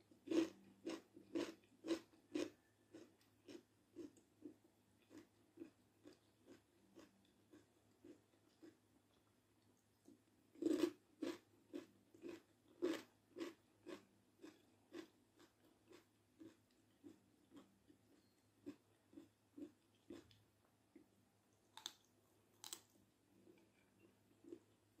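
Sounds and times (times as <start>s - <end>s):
chewing: 0.3s - 21.0s, 21.7s - 22.9s
crunchy bite into cucumber: 22.6s - 22.9s.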